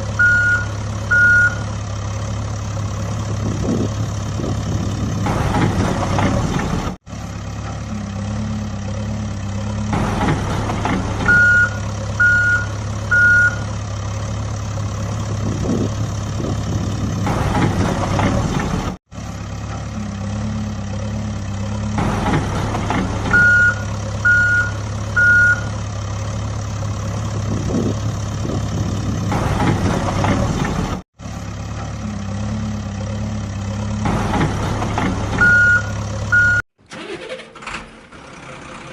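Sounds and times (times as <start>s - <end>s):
truck engine running: 0.0s - 38.9s
reversing beeps: 0.2s - 1.7s, 11.3s - 13.7s, 23.3s - 25.7s, 35.4s - 36.6s.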